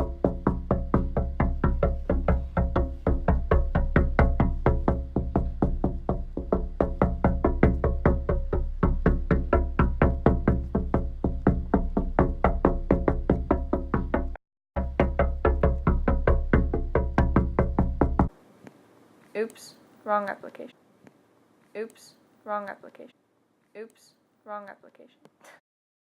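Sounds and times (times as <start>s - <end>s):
plucked notes pulsing: 0.0s - 18.3s
steady low bass: 0.0s - 18.3s.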